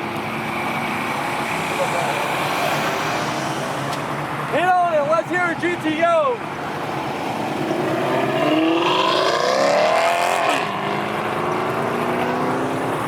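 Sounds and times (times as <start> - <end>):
car engine accelerating: 6.6 - 13.0.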